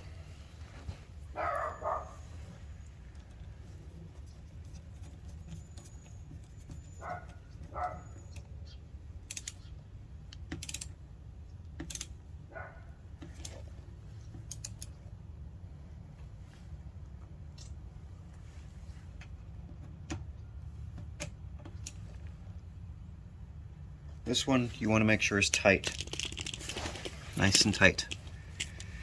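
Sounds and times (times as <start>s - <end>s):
short squeaks: 5.2s - 8.8s
small metal parts handled: 25.6s - 29.0s.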